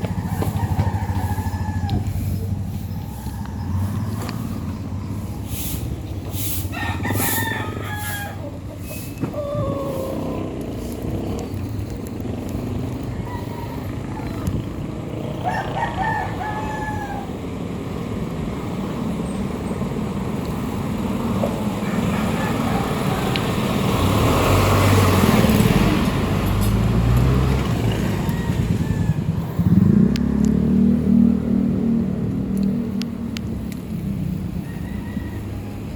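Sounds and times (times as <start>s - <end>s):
rooster crowing: 0.0s - 2.3s, 6.7s - 8.6s, 12.9s - 14.7s, 15.4s - 17.4s, 21.8s - 23.6s, 27.7s - 29.8s, 34.6s - 35.9s
motor vehicle engine: 0.0s - 35.9s
outdoor noise: 0.0s - 35.9s.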